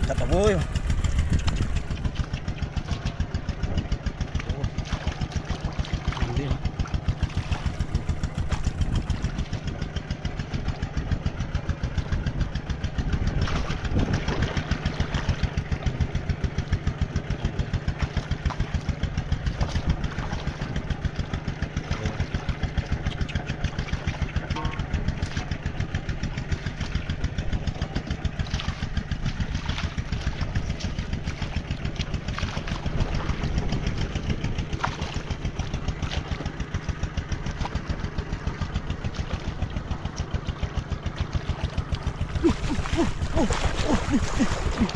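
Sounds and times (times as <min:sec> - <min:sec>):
small engine putter: 0:00.0 - 0:44.9.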